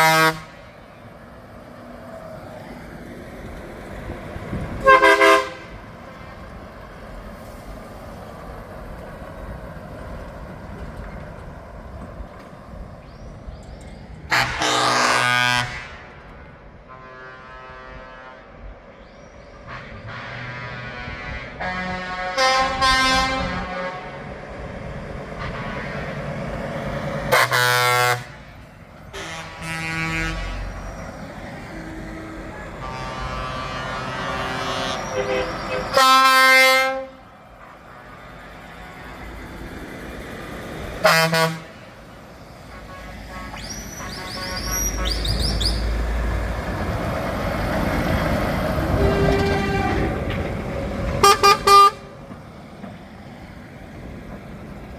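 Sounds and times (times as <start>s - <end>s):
truck air horn blasts: 0.0s - 0.9s, 4.7s - 6.2s, 14.3s - 18.8s, 19.6s - 24.4s, 25.4s - 26.2s, 27.2s - 38.3s, 41.0s - 46.1s, 48.8s - 50.3s, 51.2s - 52.2s
truck engines running: 0.0s - 54.9s
tyre and road noise: 0.0s - 54.9s.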